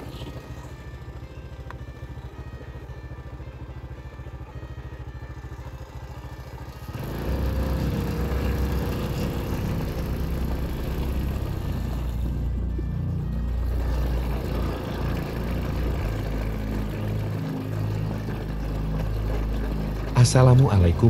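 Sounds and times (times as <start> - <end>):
motorcycle engine: 0.0 - 21.0.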